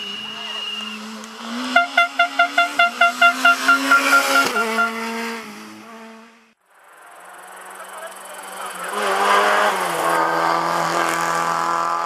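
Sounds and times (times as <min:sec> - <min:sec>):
rally car driving past: 0:00.5 - 0:06.4
rapid pitched pulses: 0:01.6 - 0:05.3.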